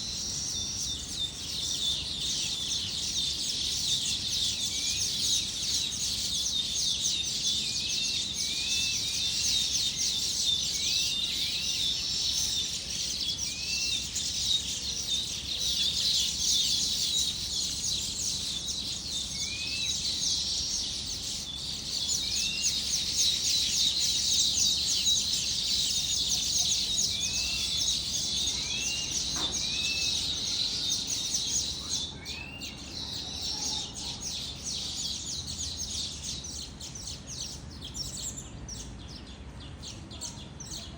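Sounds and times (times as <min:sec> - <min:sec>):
flock of birds chattering: 0:00.0 - 0:40.9
bird upward-sweeping call: 0:19.0 - 0:35.2.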